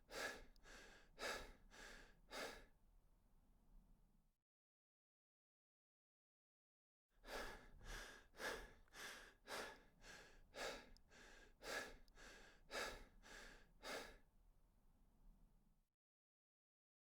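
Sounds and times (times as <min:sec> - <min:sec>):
person breathing heavily: 0:00.1 - 0:02.7, 0:07.2 - 0:14.2.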